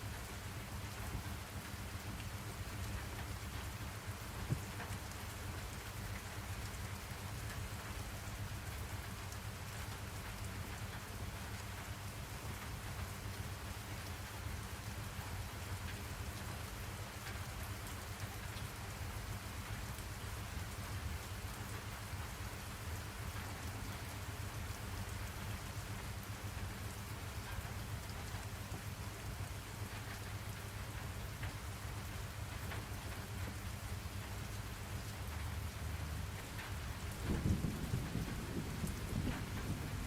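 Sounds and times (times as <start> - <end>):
falling rain hiss: 0.0 - 40.0
constant low rumble: 35.0 - 40.0.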